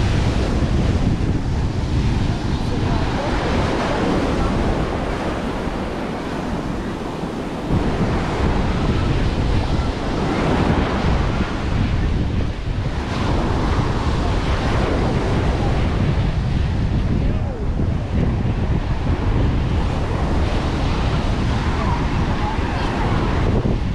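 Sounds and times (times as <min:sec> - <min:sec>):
ocean surf washing onto beach: 0:00.0 - 0:23.9
wind buffeting microphone: 0:00.0 - 0:23.9.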